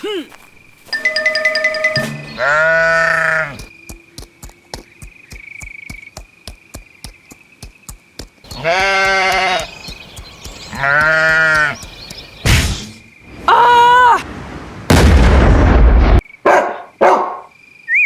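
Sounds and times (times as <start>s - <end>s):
faint steady high tone: 0.9s - 2.4s
livestock bleating: 2.2s - 3.6s, 8.5s - 9.7s, 10.7s - 11.8s.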